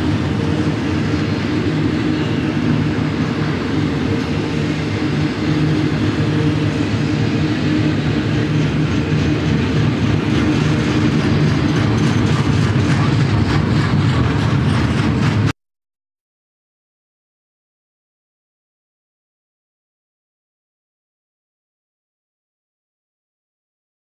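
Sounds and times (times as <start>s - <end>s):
train wheels rumbling on rails: 0.0s - 15.6s.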